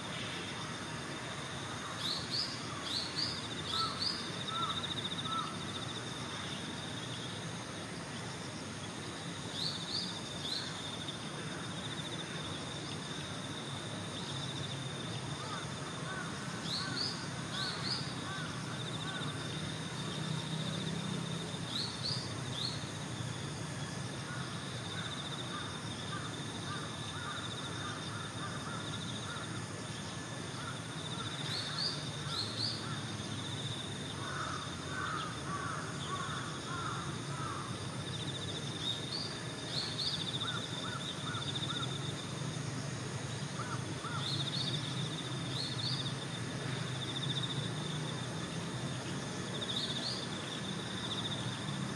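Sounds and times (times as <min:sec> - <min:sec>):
insect trill: 0:00.0 - 0:51.9
crows calling: 0:03.7 - 0:05.6, 0:34.2 - 0:37.7, 0:43.6 - 0:44.3.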